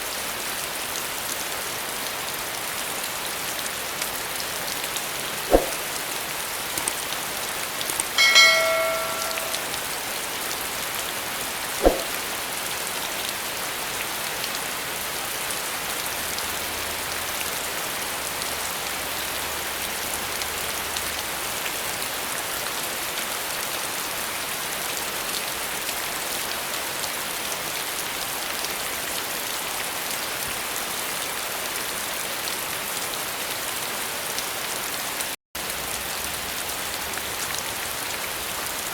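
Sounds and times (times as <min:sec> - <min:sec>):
rain falling on surfaces: 0:00.0 - 0:38.9
sharp knocks: 0:08.2 - 0:09.6
brief ringing tone: 0:08.2 - 0:09.7.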